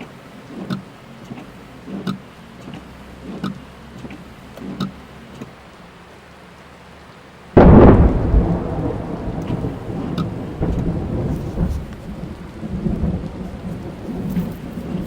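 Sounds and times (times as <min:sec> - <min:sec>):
rain pattering on car: 0:00.0 - 0:15.0
thunder rumbling: 0:07.6 - 0:15.0.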